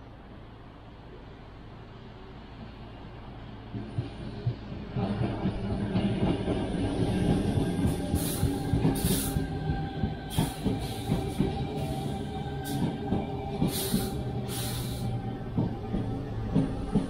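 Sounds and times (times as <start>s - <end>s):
train humming: 0.0s - 17.0s.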